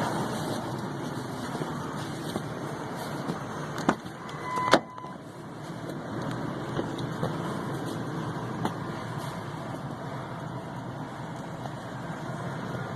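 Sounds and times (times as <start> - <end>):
truck engine idling: 0.0 - 12.9
short beep: 4.4 - 5.2.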